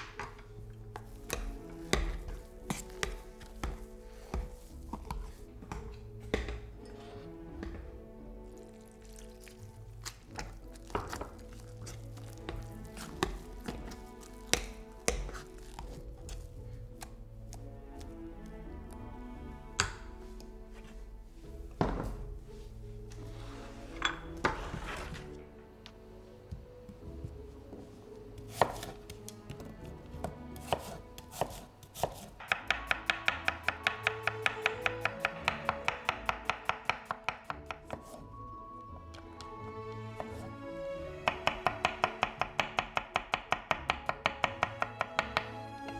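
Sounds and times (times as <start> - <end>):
background music: 0.0 - 45.9
knife chopping on cutting board: 13.0 - 15.5, 28.5 - 29.7, 30.6 - 38.3, 41.3 - 45.6.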